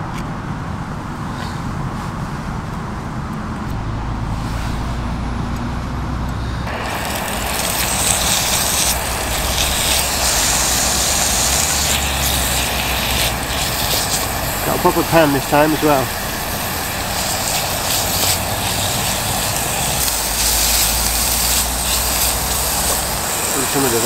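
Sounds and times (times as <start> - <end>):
road traffic rumble: 0.0 - 24.0
chicken sizzling in a pan: 6.7 - 24.0.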